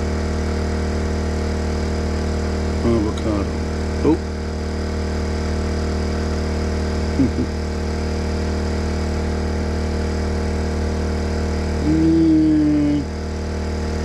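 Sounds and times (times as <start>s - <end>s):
generator engine hum: 0.0s - 14.0s
short vocal sound: 7.1s - 7.6s, 11.8s - 13.1s
person humming: 7.2s - 7.6s, 11.8s - 13.1s.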